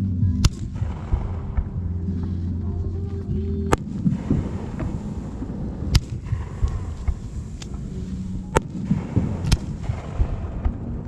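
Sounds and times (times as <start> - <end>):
rumble of distant booms: 0.0 - 11.0
firework shells cracking: 3.6 - 11.0.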